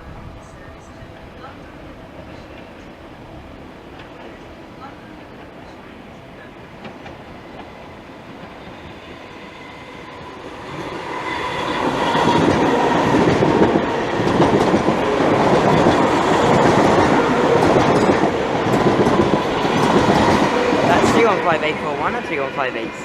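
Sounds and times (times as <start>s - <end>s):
electric train whine: 0.0s - 23.0s
train wheels clattering over rail joints: 11.6s - 20.9s.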